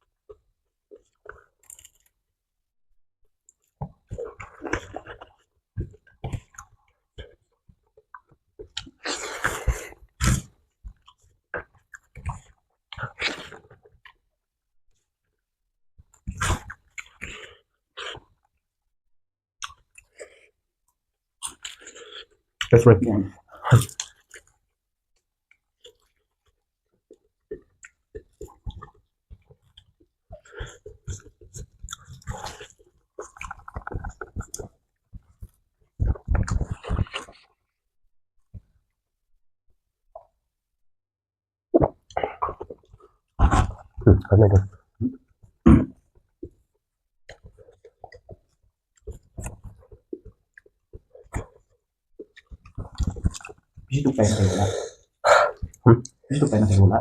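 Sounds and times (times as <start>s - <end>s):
chewing and crunching: 0.9s - 2.2s, 21.4s - 22.8s, 23.5s - 24.6s, 25.5s - 37.6s, 47.3s - 53.9s
wet mouth clicks: 19.6s - 20.2s.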